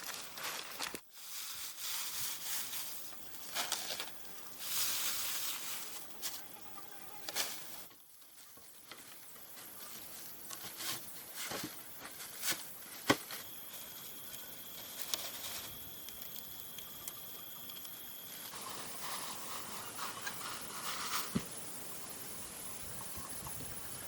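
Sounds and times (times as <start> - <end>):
faint high-pitched tone: 3.8 - 11.0.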